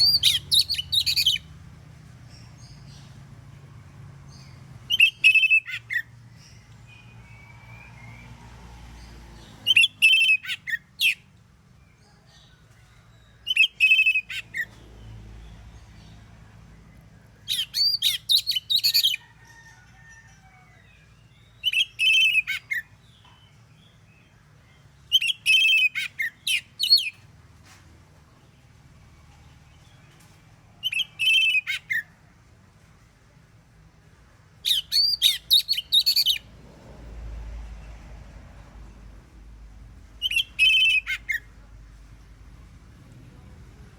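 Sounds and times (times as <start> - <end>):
bird singing whistled phrases: 34.7 - 36.4, 40.2 - 41.4.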